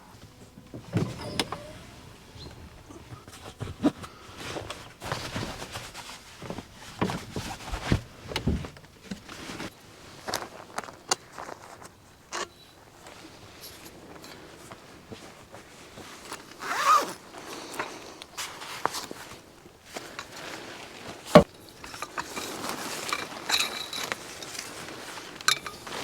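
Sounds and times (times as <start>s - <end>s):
camping gear being handled: 0.0s - 12.4s, 13.0s - 26.0s
thumps: 0.3s - 3.3s.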